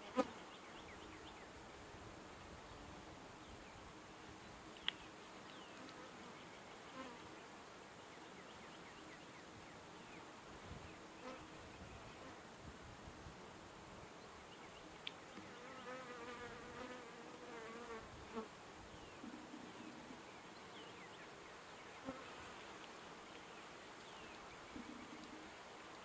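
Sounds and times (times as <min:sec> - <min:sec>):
honeybees buzzing: 0:15.3 - 0:18.5.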